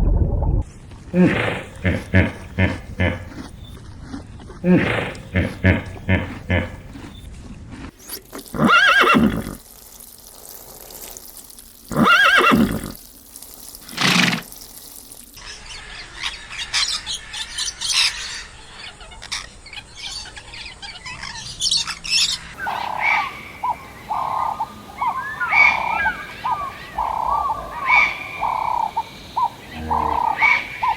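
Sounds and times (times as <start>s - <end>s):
loud neighing animal calls: 8.5s - 9.6s, 11.9s - 13.0s, 22.6s - 30.9s
short repeated animal calls: 22.6s - 30.9s.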